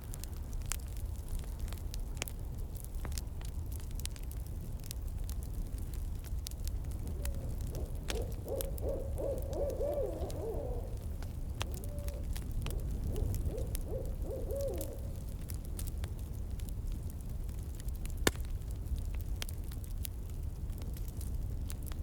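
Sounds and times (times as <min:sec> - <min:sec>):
campfire crackling: 0:00.0 - 0:22.0
owl hooting: 0:06.9 - 0:15.2.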